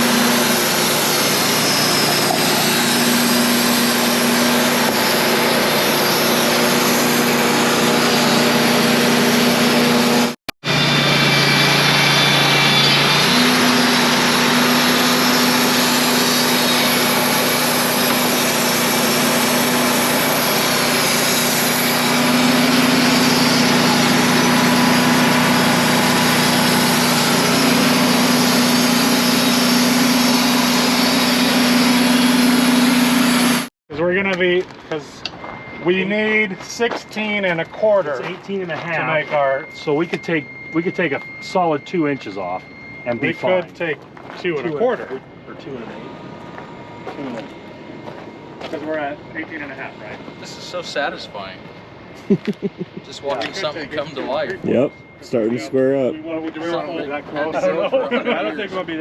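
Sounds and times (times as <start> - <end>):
band sawmill running: 0.0 - 59.0
engine hum: 0.0 - 59.0.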